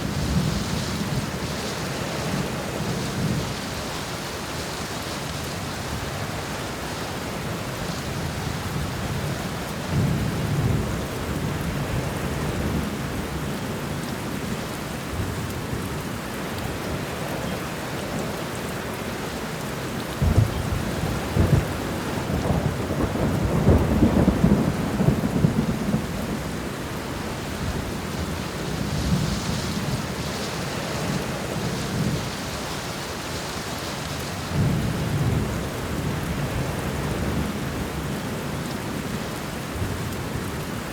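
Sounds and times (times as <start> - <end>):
steady rain: 0.0 - 40.9
sharp thunder cracks: 20.2 - 26.1
thunder rumbling: 20.2 - 32.5.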